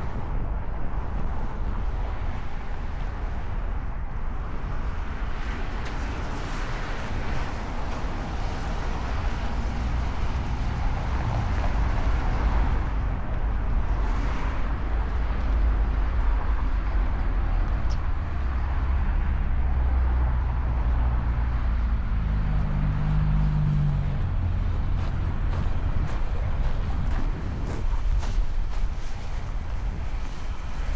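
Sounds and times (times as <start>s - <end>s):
road traffic rumble: 0.0s - 30.9s
vehicles passing: 0.0s - 30.9s.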